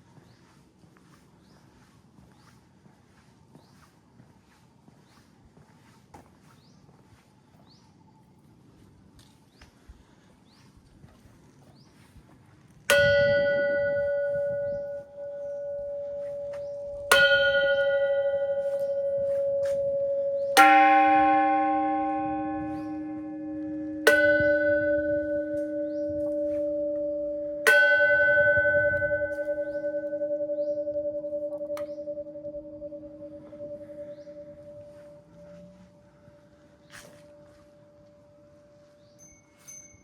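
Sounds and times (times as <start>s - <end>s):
deeper bell tone: 12.9s - 40.0s
metal temple bells ringing: 12.9s - 40.0s.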